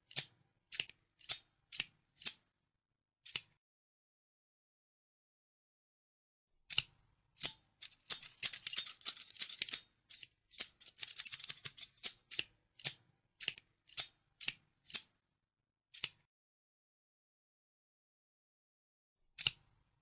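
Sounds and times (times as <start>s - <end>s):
scissors snipping: 0.1s - 2.4s, 3.2s - 3.6s, 6.7s - 15.1s, 15.9s - 16.3s, 19.4s - 19.7s.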